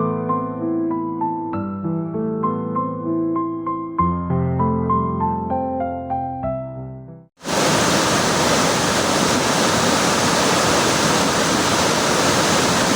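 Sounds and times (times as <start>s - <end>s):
soft piano music: 0.0s - 7.3s
waterfall roaring: 7.4s - 12.9s.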